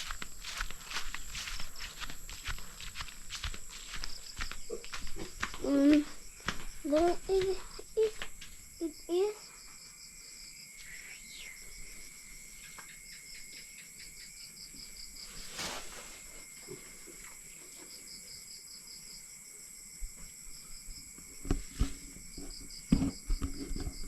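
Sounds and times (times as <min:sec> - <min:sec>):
rustle: 0:00.0 - 0:04.3, 0:15.0 - 0:18.4
insect high buzz: 0:00.0 - 0:24.0
insects chirping: 0:00.0 - 0:24.0.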